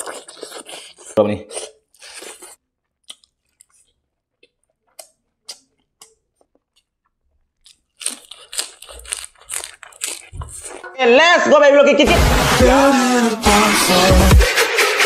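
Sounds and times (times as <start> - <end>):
person chewing and lip smacking: 0.0 - 10.9.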